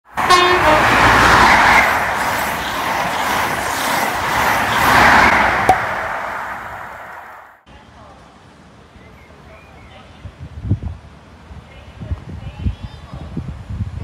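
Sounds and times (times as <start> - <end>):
train rushing past: 0.1 - 7.6.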